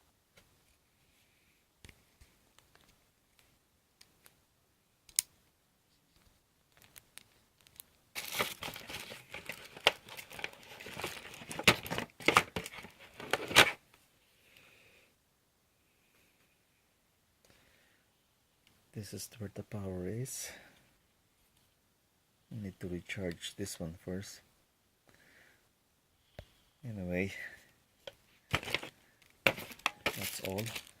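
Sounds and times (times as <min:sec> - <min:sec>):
packaging crinkling and tearing: 0:07.7 - 0:13.8, 0:28.5 - 0:28.9, 0:29.5 - 0:31.0.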